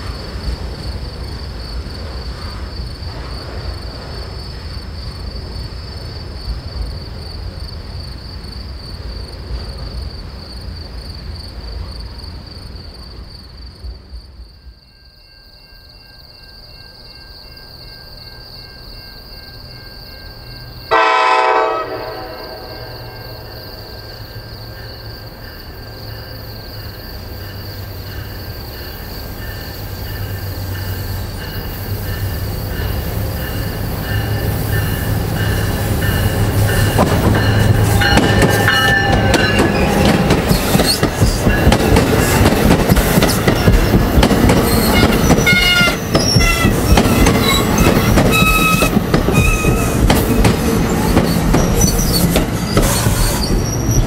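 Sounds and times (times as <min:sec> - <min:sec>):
approaching train rumble: 0:00.0 - 0:54.0
freight train rumble: 0:00.0 - 0:54.0
loud train horn blast: 0:20.9 - 0:23.4, 0:44.9 - 0:47.7.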